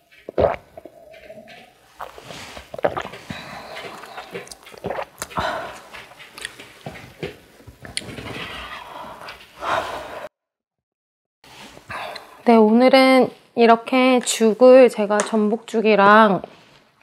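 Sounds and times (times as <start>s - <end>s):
person chewing and biting: 0.3s - 6.8s.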